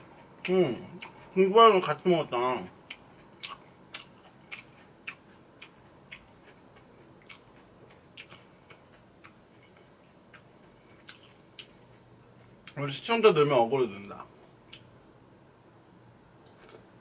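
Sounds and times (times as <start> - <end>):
mouth chewing clicks: 2.8 - 11.8.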